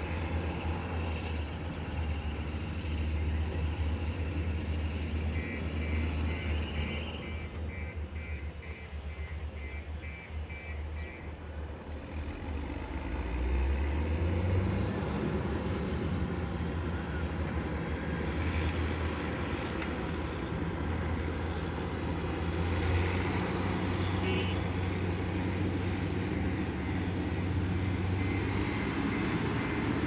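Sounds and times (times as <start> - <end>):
heavy diesel engine revving: 12.2 - 30.0.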